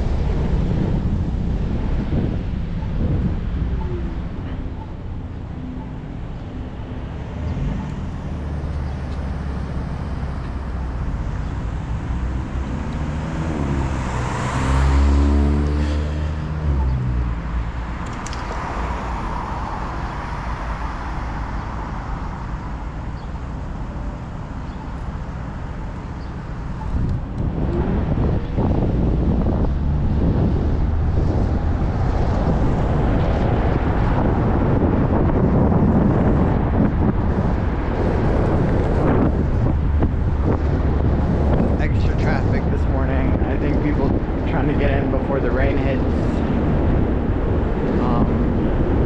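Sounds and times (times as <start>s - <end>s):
wind rumble on microphone: 0.0s - 49.0s
vehicle passing by: 6.4s - 22.4s.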